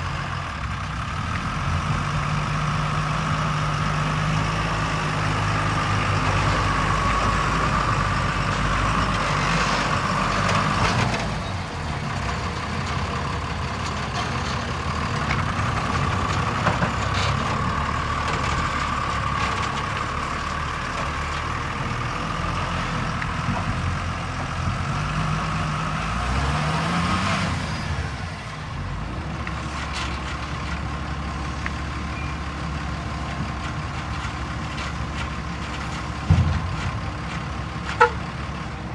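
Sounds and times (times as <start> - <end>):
diesel engine under load: 0.0 - 38.9.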